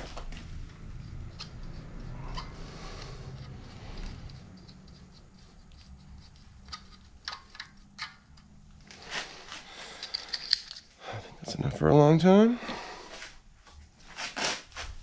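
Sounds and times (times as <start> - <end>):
tools and metal parts clicking: 4.0 - 8.5, 9.8 - 10.9.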